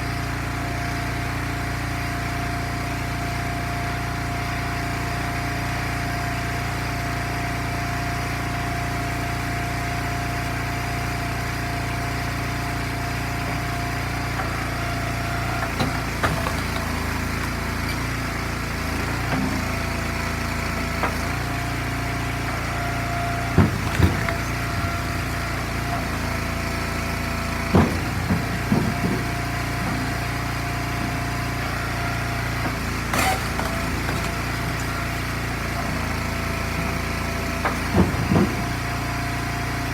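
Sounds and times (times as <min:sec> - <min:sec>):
log splitter engine running: 0:00.0 - 0:39.9
knocks and clunks: 0:13.5 - 0:18.2, 0:22.4 - 0:31.2, 0:31.8 - 0:35.2, 0:37.1 - 0:39.2.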